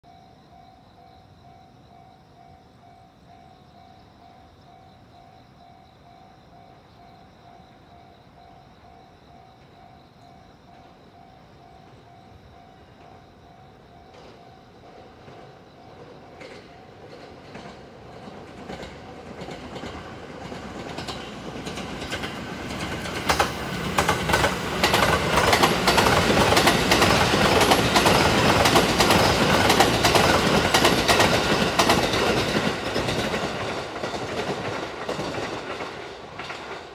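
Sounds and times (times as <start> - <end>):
train wheels clacking over rail joints: 14.1 - 36.9.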